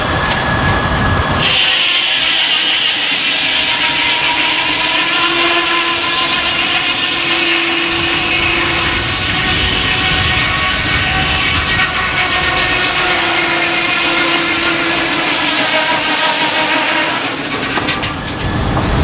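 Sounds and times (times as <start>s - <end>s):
circular saw cutting log: 1.4s - 18.2s.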